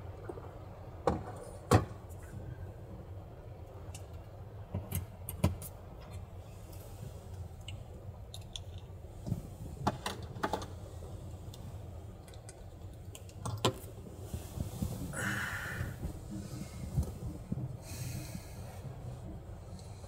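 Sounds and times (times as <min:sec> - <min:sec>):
steady low rumble: 0:00.0 - 0:20.0
light clicks and clatter: 0:03.7 - 0:10.8, 0:11.5 - 0:15.0.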